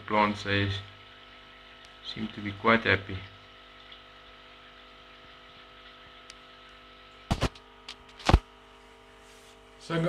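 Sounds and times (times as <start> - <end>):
electrical hum: 0.0 - 10.0
sharp knocks: 7.3 - 7.6.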